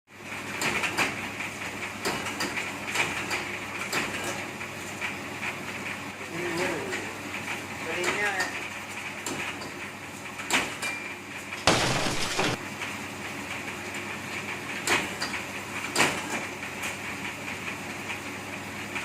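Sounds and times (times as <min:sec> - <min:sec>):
machine humming: 0:11.7 - 0:12.6.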